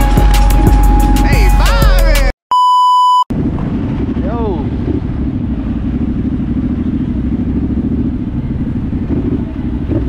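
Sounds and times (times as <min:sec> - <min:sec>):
dirt bike engine running: 0:03.3 - 0:10.0.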